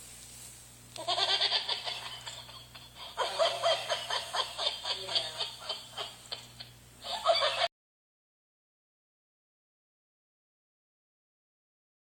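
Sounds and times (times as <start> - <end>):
puppy laugh-like pulsed sounds: 1.0 - 7.7.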